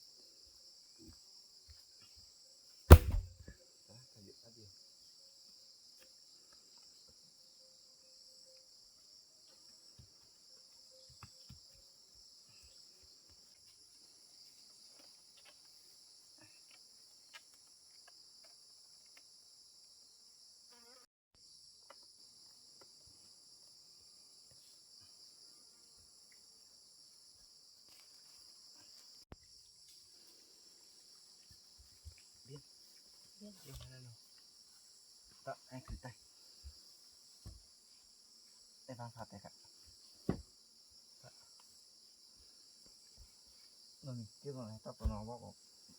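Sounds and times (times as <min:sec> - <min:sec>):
insects trilling: 0:20.6 - 0:45.9.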